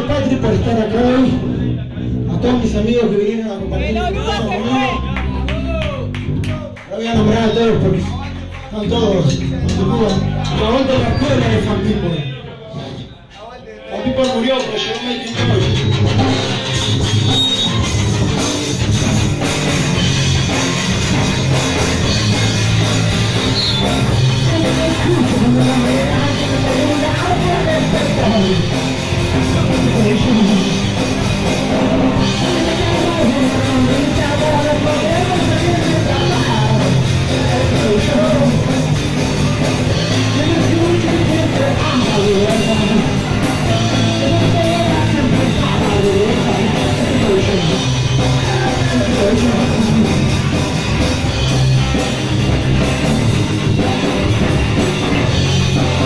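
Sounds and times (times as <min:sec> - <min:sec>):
bass: 0:00.0 - 0:56.0
distorted electric guitars: 0:14.0 - 0:56.0
drum kit: 0:14.2 - 0:56.0
person singing: 0:23.9 - 0:50.7.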